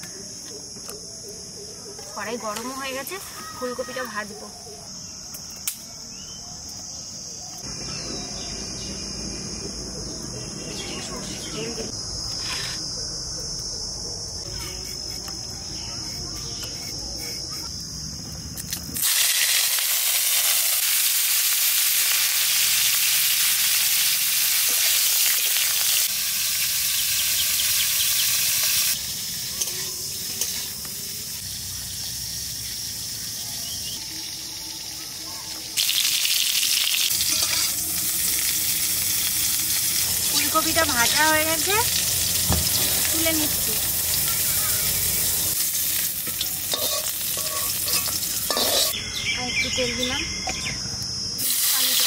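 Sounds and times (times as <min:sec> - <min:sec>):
crickets chirring: 0:00.0 - 0:52.0
vegetables sizzling in hot oil: 0:18.7 - 0:49.0, 0:51.4 - 0:52.0
spatula stirring: 0:46.3 - 0:49.0.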